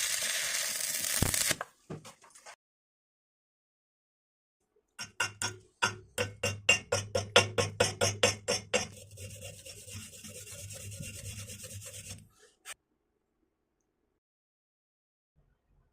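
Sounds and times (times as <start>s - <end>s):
wire brush scrubbing metal: 8.0s - 12.8s.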